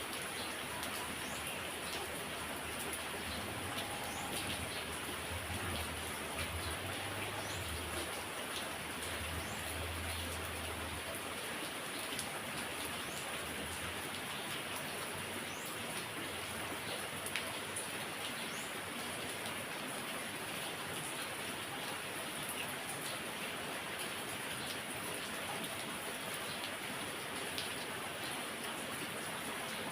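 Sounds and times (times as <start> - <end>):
heavy rain hissing: 0.0 - 11.1.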